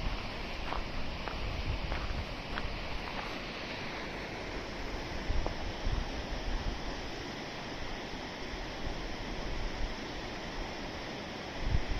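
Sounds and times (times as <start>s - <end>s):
wind buffeting microphone: 0.0s - 3.4s, 4.9s - 6.8s, 11.6s - 11.9s
river water rushing: 0.0s - 11.9s.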